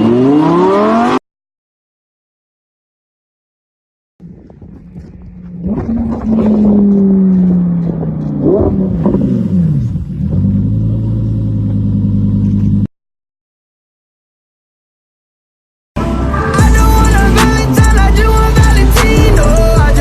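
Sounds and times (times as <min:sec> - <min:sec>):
sports car engine revving: 0:00.0 - 0:01.2, 0:04.8 - 0:12.9, 0:16.0 - 0:20.0.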